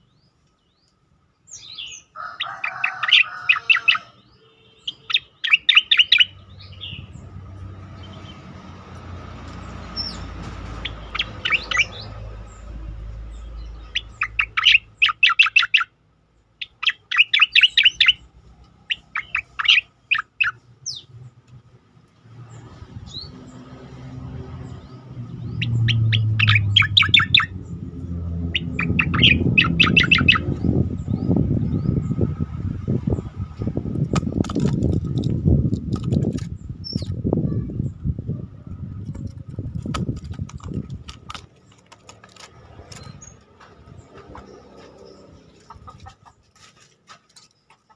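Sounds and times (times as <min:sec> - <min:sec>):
bird staccato chirps: 0:02.7 - 0:07.3, 0:09.6 - 0:16.0, 0:16.6 - 0:21.1, 0:24.7 - 0:27.8, 0:28.4 - 0:31.8
low background rumbling: 0:22.4 - 0:41.6.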